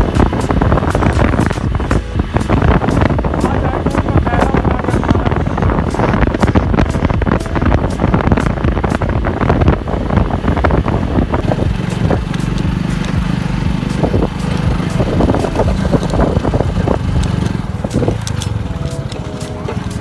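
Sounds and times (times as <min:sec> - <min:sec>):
motorcycle engine running: 0:00.0 - 0:20.0
wind buffeting microphone: 0:00.0 - 0:20.0
knocks and rattles: 0:04.7 - 0:20.0.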